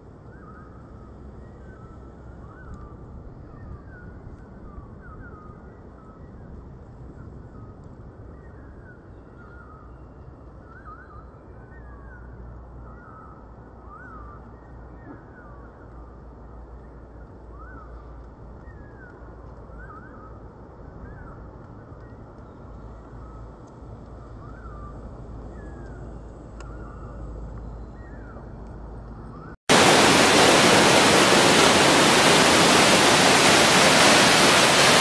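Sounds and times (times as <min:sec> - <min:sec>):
birds chirping: 0:29.7 - 0:35.0.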